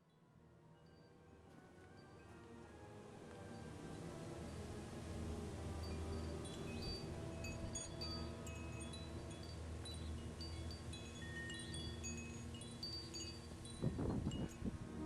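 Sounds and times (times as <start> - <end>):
chimes tinkling: 0.8 - 2.6, 5.8 - 14.8
rustle: 1.4 - 15.0.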